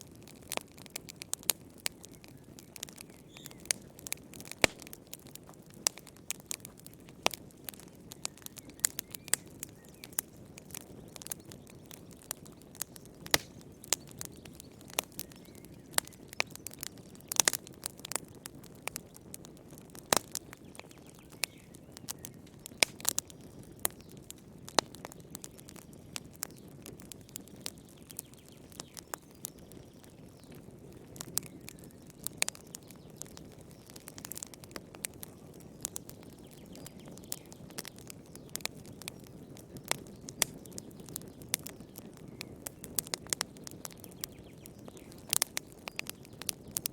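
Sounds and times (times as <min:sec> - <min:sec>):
fire crackling and popping: 0:00.0 - 0:46.9.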